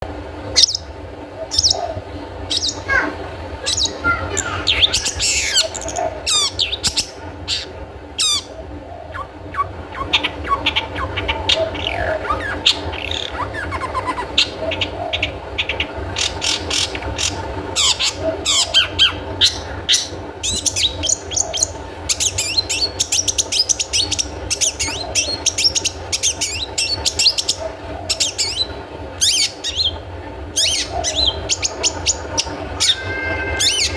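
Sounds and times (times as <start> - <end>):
low steady hum: 0.0 - 33.9
bird chattering song: 0.5 - 33.9.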